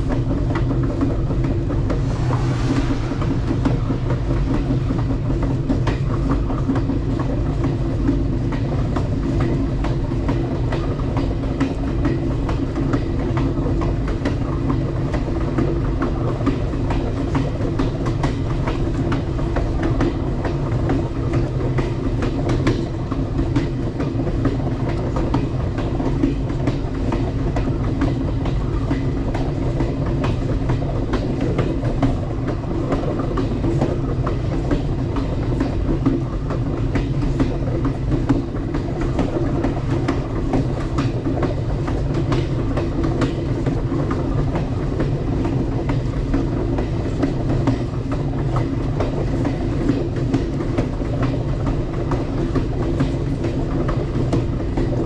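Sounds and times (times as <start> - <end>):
clicks and clacks from rail joints: 0.0 - 55.0
train wheels rumbling on rail: 0.0 - 55.0.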